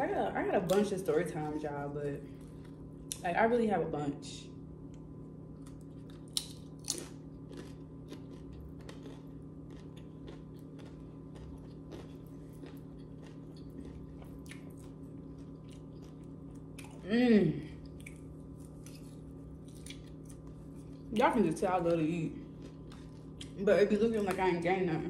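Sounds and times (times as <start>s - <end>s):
steady low hum: 0.0s - 25.0s
person chewing and biting food: 5.5s - 17.1s, 17.7s - 21.1s, 22.4s - 23.6s.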